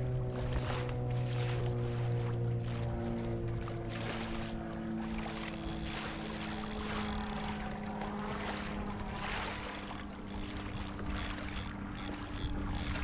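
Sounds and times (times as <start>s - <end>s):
steady low hum: 0.0s - 13.0s
water sloshing against hull: 0.0s - 13.0s.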